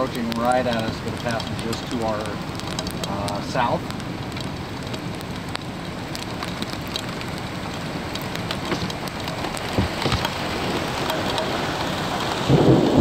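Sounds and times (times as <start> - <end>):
heavy rain: 0.0 - 13.0
raindrops ticking close by: 0.0 - 13.0
dull thumps: 8.5 - 10.5
thunder rumbling: 8.7 - 13.0.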